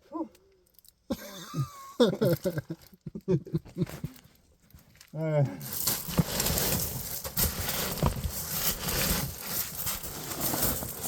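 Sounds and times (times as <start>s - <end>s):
person crawling scuffing and scraping: 3.8s - 11.0s.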